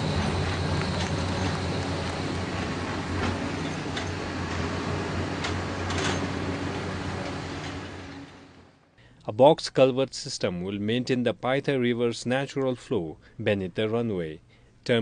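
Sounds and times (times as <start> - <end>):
low mechanical hum: 0.0 - 9.4.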